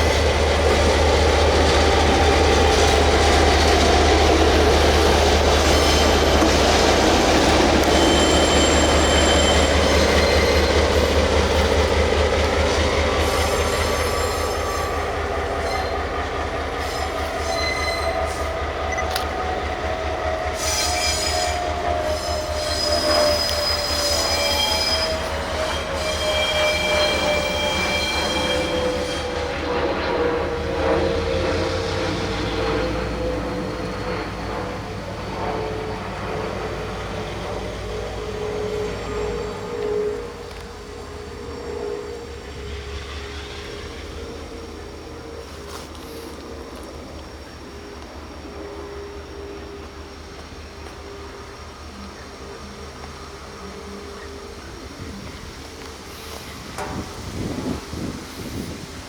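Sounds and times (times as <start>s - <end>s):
locomotive rumble: 0.0s - 59.0s
metallic wheel squeals: 2.2s - 19.4s, 20.1s - 34.6s.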